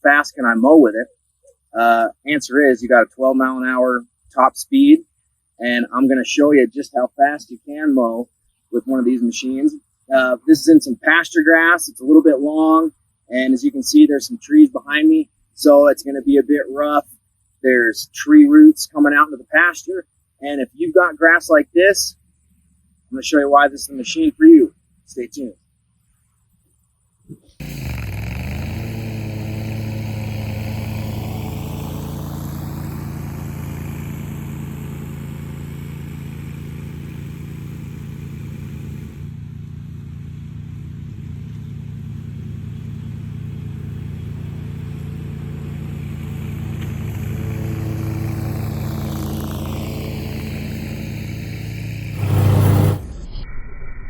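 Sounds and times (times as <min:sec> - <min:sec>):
mower engine running under load: 0:27.6 - 0:53.1.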